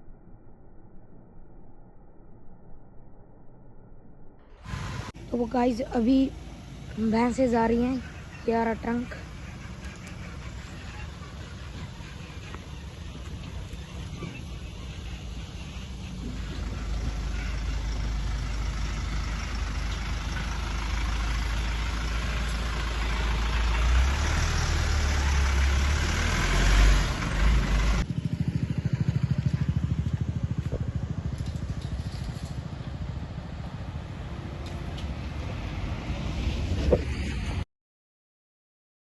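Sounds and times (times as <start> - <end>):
truck engine running: 4.6 - 35.7
loud rumbling noise: 4.6 - 37.6.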